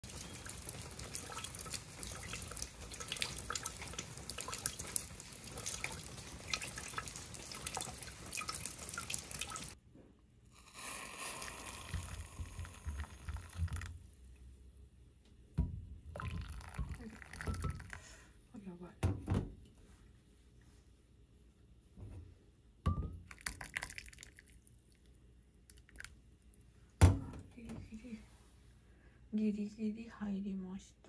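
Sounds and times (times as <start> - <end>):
rain on wet pavement: 0.0 - 9.8
raindrops ticking: 0.0 - 9.8.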